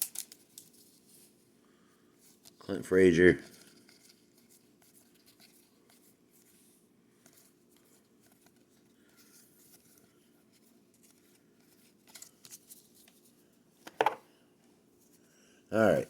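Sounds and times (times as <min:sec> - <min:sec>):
trading cards rustling and clicking: 0:00.0 - 0:01.1, 0:07.2 - 0:13.2.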